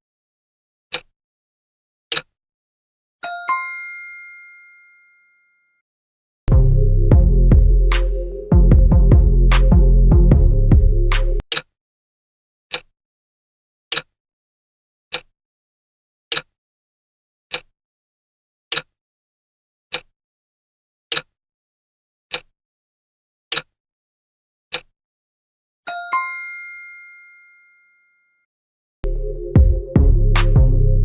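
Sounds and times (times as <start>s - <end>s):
bell ding: 3.2s - 5.8s, 25.9s - 28.3s
electronic music: 6.5s - 11.4s, 29.0s - 31.0s
timer ticking: 29.6s - 30.2s.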